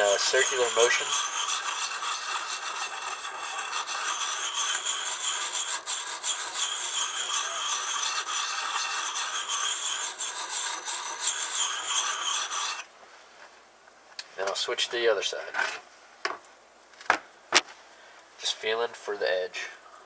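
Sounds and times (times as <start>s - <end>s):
sharpening stone scraping steel: 0.0s - 12.9s.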